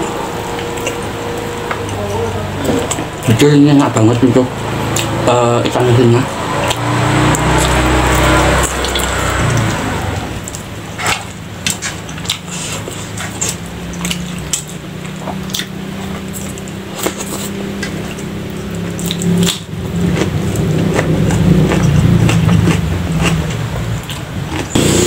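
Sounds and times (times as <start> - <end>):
chewing with lip smacks: 0.0 - 2.0, 10.4 - 24.8
motorbike engine hum: 0.0 - 25.0
sharp mouth clicks: 10.4 - 24.8.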